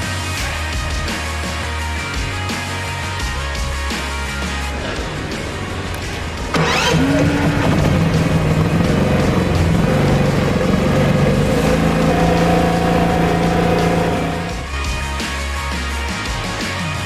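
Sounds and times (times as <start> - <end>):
generator engine running: 4.7 - 14.7.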